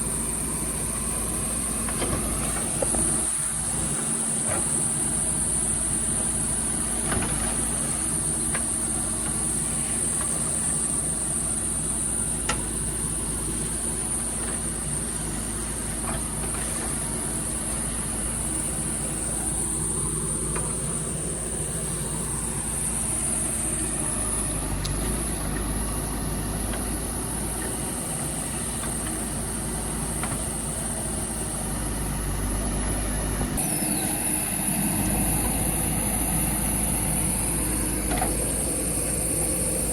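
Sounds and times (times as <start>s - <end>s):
diesel engine running: 0.0s - 39.9s
high-pitched whine: 33.6s - 39.9s.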